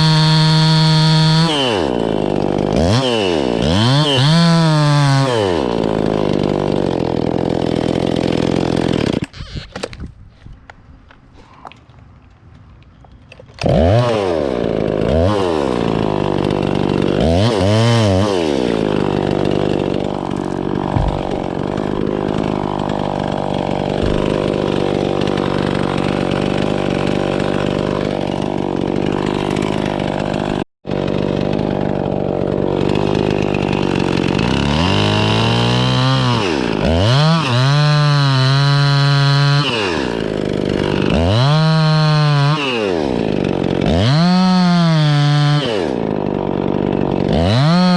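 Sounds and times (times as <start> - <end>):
chainsaw revving: 0.0 - 9.8, 13.6 - 47.9.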